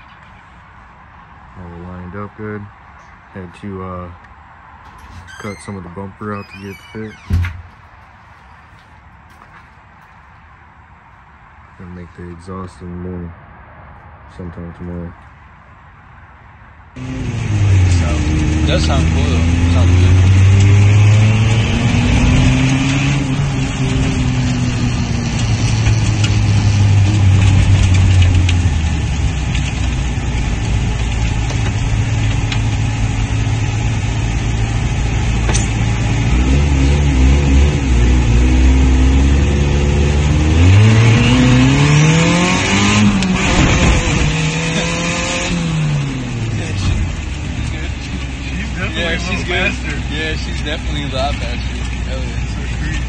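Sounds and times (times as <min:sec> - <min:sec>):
turbocharged car engine revving: 0:17.0 - 0:53.0.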